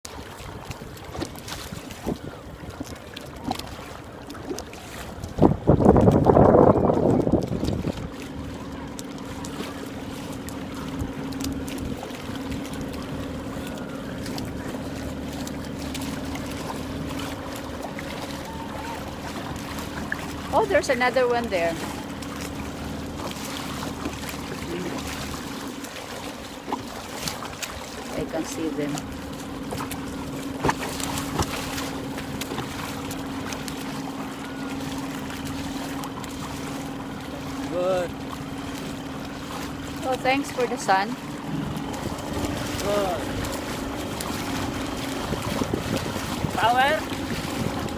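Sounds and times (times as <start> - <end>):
water noise: 0.0 - 47.9
wind: 0.0 - 47.9
steady motor hum: 0.1 - 47.9
wind on microphone: 0.5 - 3.5, 5.1 - 8.9, 41.4 - 47.9.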